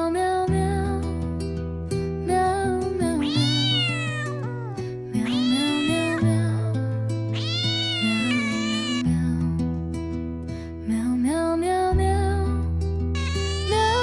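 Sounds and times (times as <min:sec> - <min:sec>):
cat meowing: 0:03.2 - 0:06.6, 0:07.3 - 0:09.1, 0:13.2 - 0:14.0.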